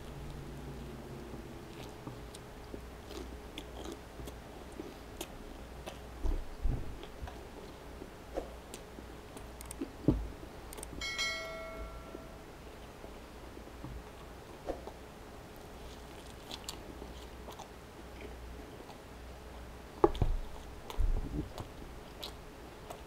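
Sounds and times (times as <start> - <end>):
chewing sandwich close up: 0.0 - 10.0, 14.0 - 23.0
bell-like chime: 11.0 - 12.4.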